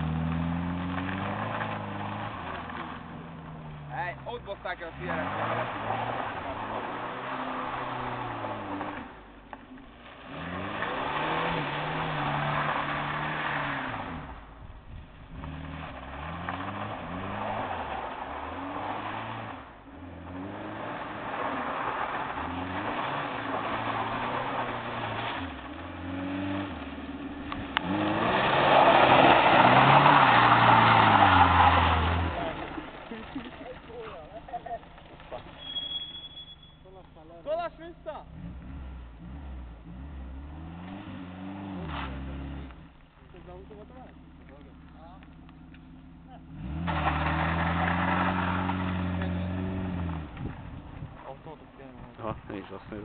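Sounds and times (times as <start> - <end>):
car engine revving hard: 4.8 - 9.1, 10.3 - 14.4, 15.3 - 32.8, 38.3 - 42.8, 46.3 - 50.8
spinning tyres hissing: 15.4 - 36.9.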